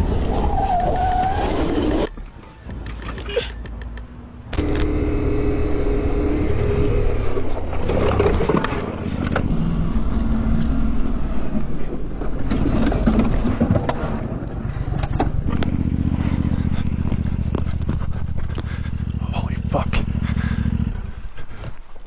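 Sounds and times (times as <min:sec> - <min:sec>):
road noise: 0:02.4 - 0:11.6, 0:15.1 - 0:22.0
vehicle engine running: 0:04.4 - 0:09.6, 0:15.1 - 0:22.0.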